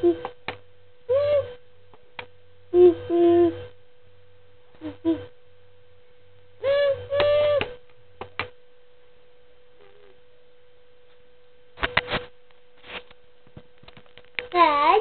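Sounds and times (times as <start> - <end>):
child imitating train whistle: 1.1 - 1.5, 2.8 - 3.6, 6.6 - 7.7.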